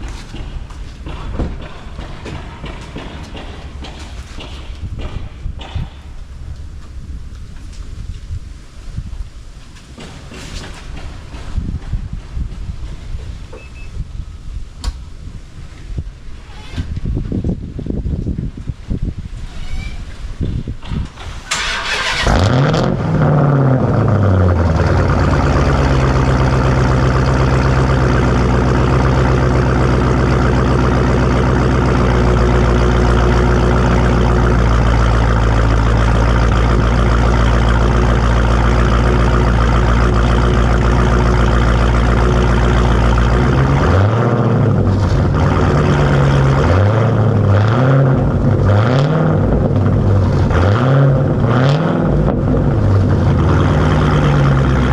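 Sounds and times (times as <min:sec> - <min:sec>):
car engine starting and idling: 0:00.0 - 0:11.5, 0:20.8 - 0:54.9
engine revs blipped: 0:21.5 - 0:54.9.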